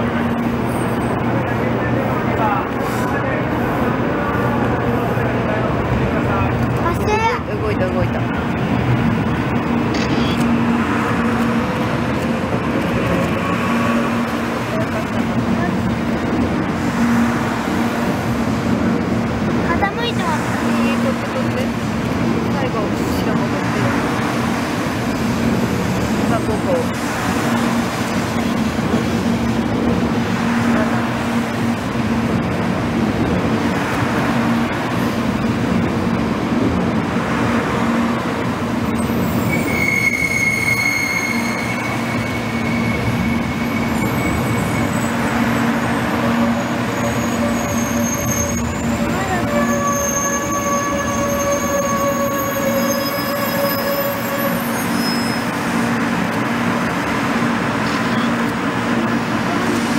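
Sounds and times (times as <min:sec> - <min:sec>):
train rumbling on rails: 0:00.0 - 0:59.9
wheel squealing: 0:39.0 - 0:45.6, 0:46.6 - 0:55.6.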